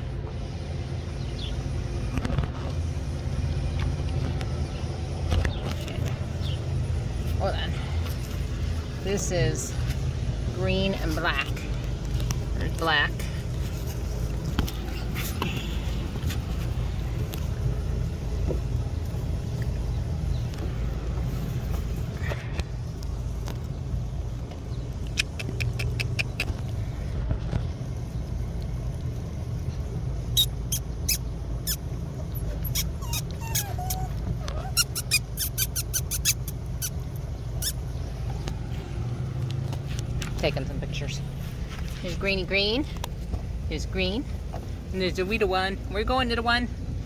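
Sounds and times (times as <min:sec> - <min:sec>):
steady low rumble: 0:00.0 - 0:47.0
puppy squeaking: 0:25.2 - 0:26.6, 0:30.4 - 0:37.0, 0:37.6 - 0:37.9.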